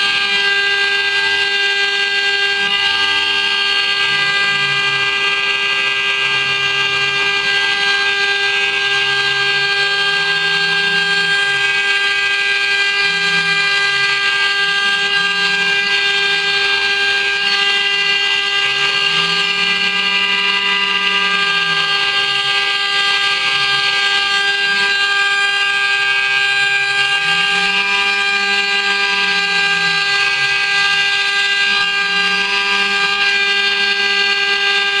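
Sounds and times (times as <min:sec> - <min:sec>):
router spindle high whine: 0:00.0 - 0:35.0.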